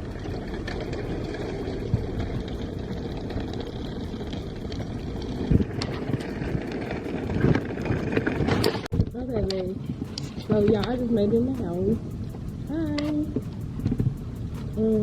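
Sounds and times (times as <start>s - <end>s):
car engine: 0.0s - 9.1s
road rumble: 0.0s - 15.0s.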